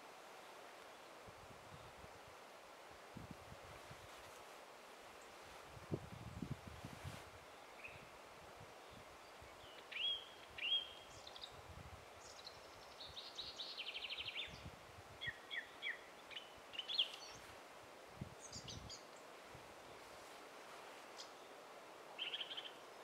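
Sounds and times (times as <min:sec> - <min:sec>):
faint outdoor hiss: 0:00.0 - 0:23.0
songbirds singing: 0:07.5 - 0:08.1, 0:08.8 - 0:17.5, 0:18.4 - 0:20.0, 0:21.1 - 0:23.0.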